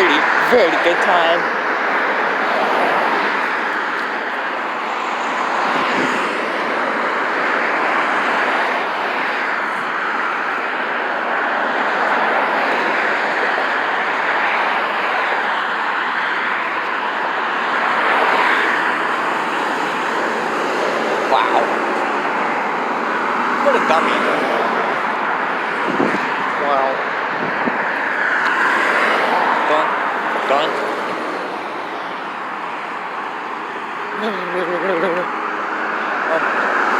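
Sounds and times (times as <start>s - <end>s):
road traffic passing: 0.0s - 36.9s.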